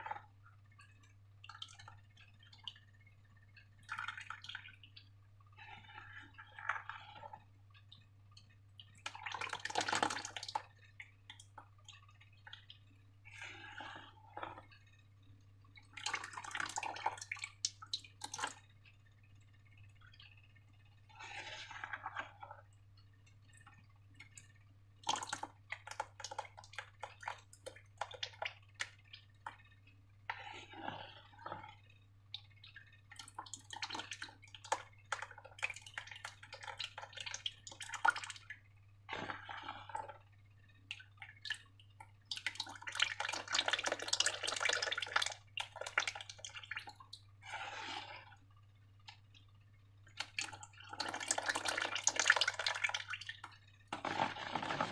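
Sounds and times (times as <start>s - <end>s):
wet slime pouring and mixing: 0.0s - 18.8s, 21.0s - 54.9s
slime dripping and squelching: 0.0s - 54.9s.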